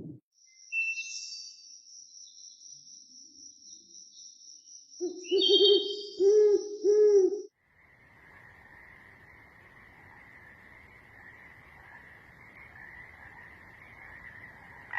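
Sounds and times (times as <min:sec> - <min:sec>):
owl hooting: 0:05.0 - 0:07.5
night chorus: 0:07.8 - 0:14.9.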